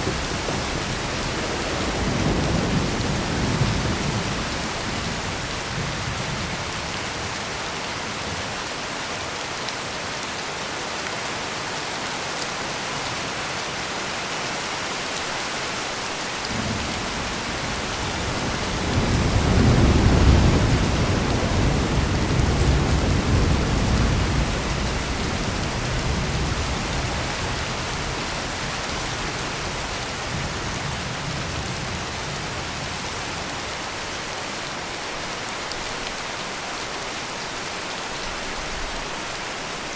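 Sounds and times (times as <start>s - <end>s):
heavy rain pouring: 0.0s - 39.9s
low roll of thunder: 16.5s - 28.8s.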